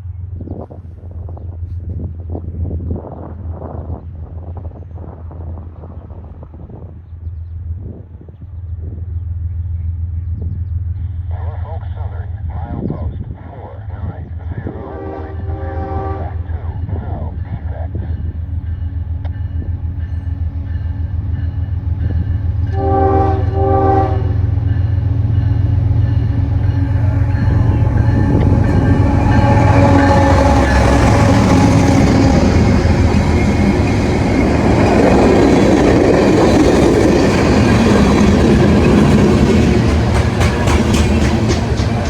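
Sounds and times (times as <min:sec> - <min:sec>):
diesel locomotive engine drone: 0:00.0 - 0:42.0
train horn blasts: 0:14.6 - 0:17.0, 0:22.1 - 0:34.1
train wheels rolling on rails: 0:16.6 - 0:42.0.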